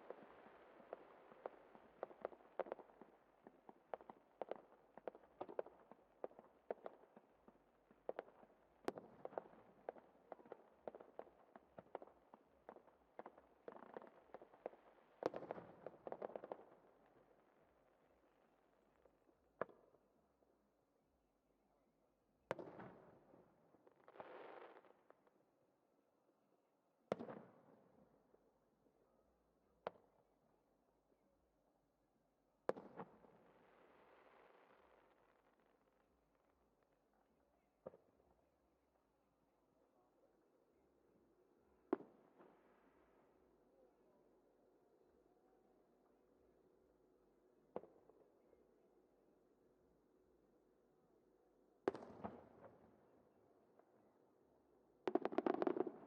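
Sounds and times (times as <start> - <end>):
fireworks bangs and crackles: 51.9 - 52.8, 55.0 - 56.0.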